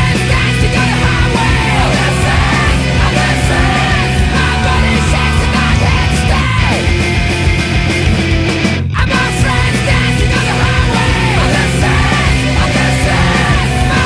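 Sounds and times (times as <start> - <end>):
loud rock music with guitars and drums: 0.0 - 14.0.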